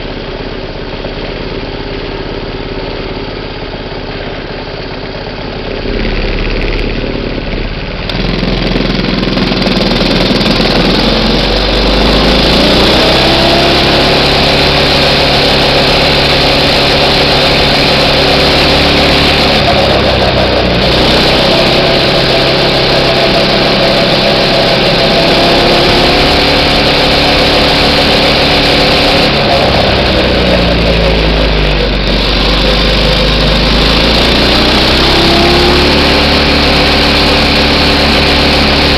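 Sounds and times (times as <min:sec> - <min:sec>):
small engine revving: 0:00.0 - 0:38.9.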